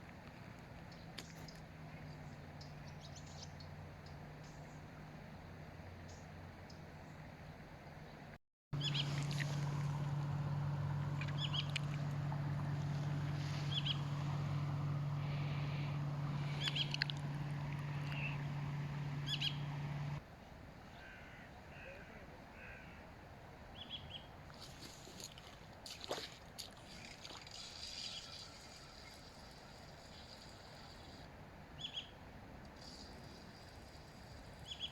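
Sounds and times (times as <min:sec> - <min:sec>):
birds chirping and calling: 0:08.8 - 0:09.9, 0:11.1 - 0:14.5, 0:15.1 - 0:20.0
steady low hum: 0:08.8 - 0:20.2.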